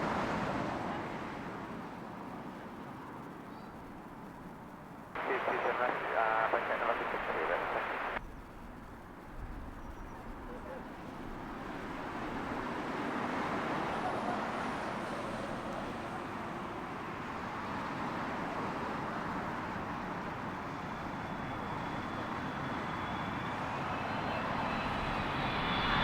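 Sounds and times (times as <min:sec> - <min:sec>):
high jet fan whine: 0:05.2 - 0:08.2
jet airliner engine rush: 0:05.2 - 0:08.2, 0:11.3 - 0:26.0.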